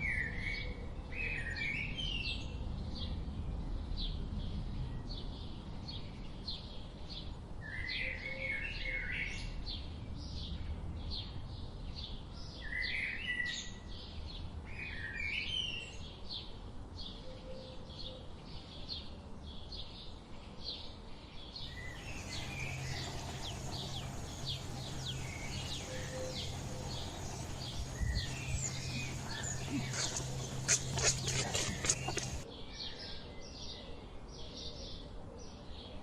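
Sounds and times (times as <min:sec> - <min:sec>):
low hum: 0:21.6 - 0:32.4
steady background hiss: 0:21.6 - 0:32.4
small birds chirping: 0:21.6 - 0:32.5.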